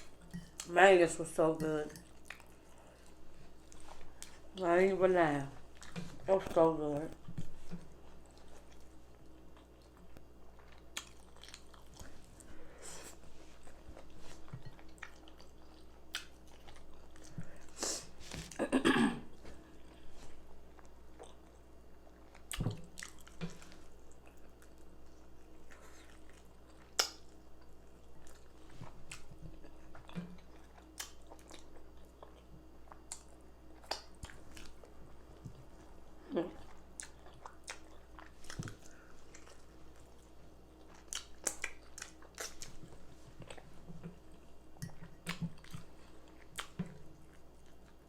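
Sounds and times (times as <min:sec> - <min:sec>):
close-miked chewing: 0:07.0 - 0:12.5, 0:19.8 - 0:48.0.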